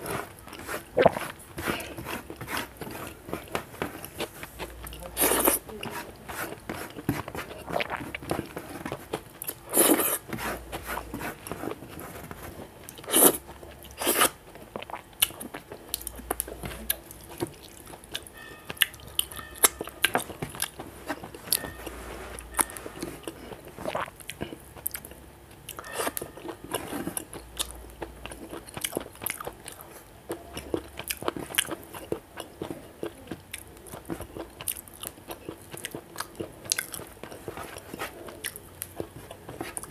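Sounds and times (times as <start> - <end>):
food crunching: 0.0 - 39.9
man chewing food: 0.0 - 39.9.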